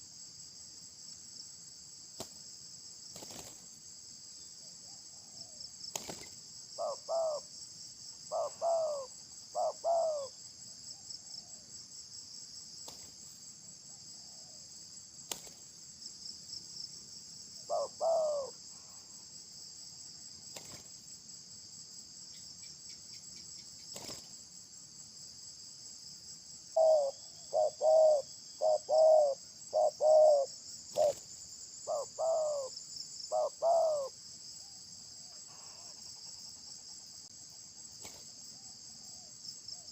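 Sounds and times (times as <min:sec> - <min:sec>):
crickets and insects trilling: 0:00.0 - 0:39.9
bird giving low two-part calls: 0:08.3 - 0:10.3, 0:26.8 - 0:31.1, 0:31.9 - 0:32.7, 0:33.3 - 0:34.1.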